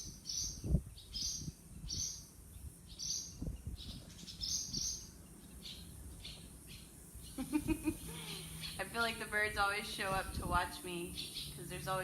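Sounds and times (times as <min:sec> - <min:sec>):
birds high short calls: 0:00.0 - 0:08.8.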